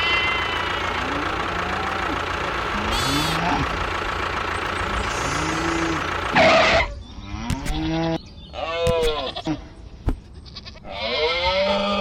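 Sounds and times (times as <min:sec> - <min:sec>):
engine running: 0:00.0 - 0:08.1
farm animal bleating: 0:00.0 - 0:12.0.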